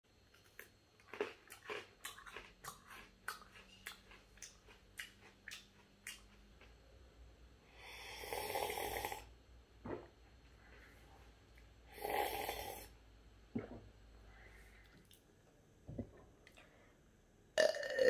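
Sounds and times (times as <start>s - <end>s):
crunchy snack chewing: 0.3s - 6.8s.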